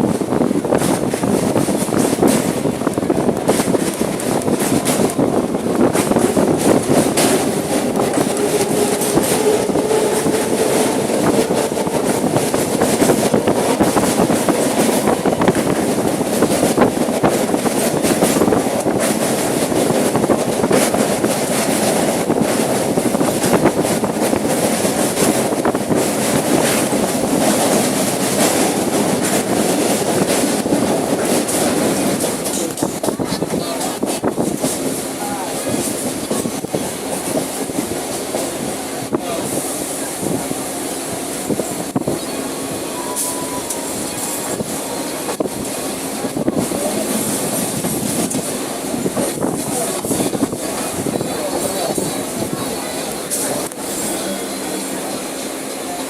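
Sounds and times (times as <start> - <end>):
wheels clicking over rails: 0.0 - 40.4
train rumbling: 0.0 - 56.0.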